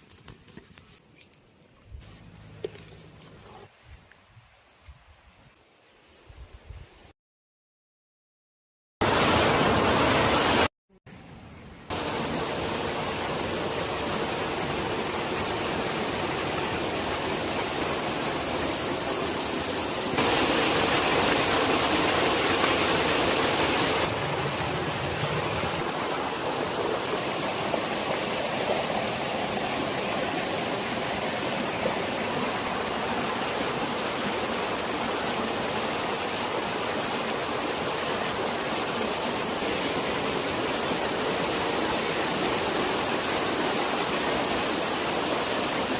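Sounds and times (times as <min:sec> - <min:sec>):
rushing water: 0:09.0 - 0:10.7, 0:11.9 - 0:45.9.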